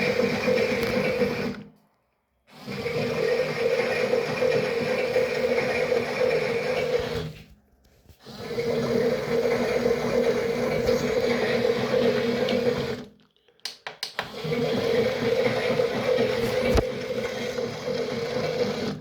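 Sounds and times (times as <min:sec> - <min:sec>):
water churning: 0:08.4 - 0:13.1.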